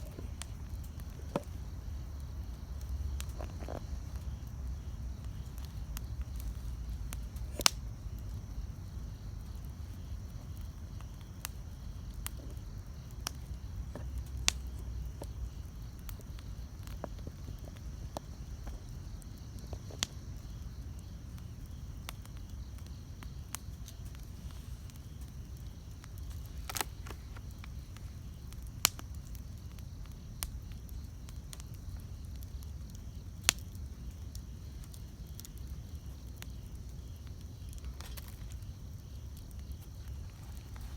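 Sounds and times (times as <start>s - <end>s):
campfire low rumble: 0.0s - 40.9s
wood crackling and popping: 0.0s - 40.9s.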